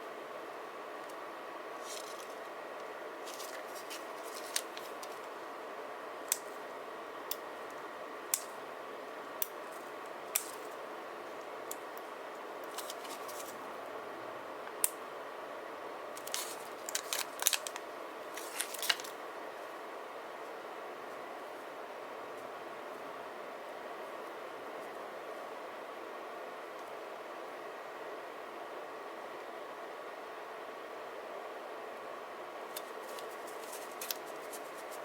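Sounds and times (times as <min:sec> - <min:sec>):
steady background hum: 0:00.0 - 0:35.0
paper handling: 0:01.8 - 0:02.4, 0:03.2 - 0:05.4, 0:12.7 - 0:13.6, 0:16.2 - 0:19.2, 0:32.7 - 0:35.0
scissors cutting paper: 0:32.8 - 0:35.0.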